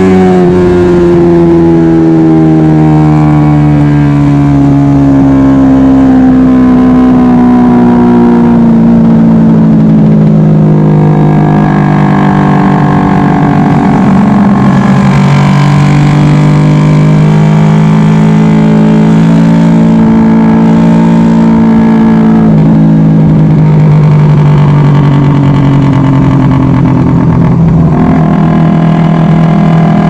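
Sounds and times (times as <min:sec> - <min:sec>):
motorcycle engine at high revs: 0:00.0 - 0:30.0
wind noise on microphone: 0:21.4 - 0:30.0.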